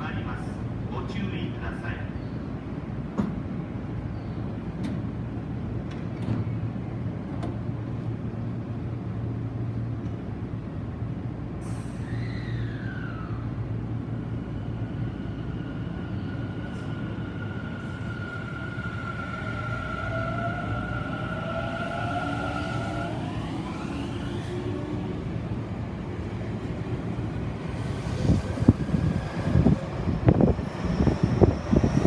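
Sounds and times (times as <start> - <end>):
electric train rumble: 0.0 - 32.0
short falling whistle: 11.8 - 13.4.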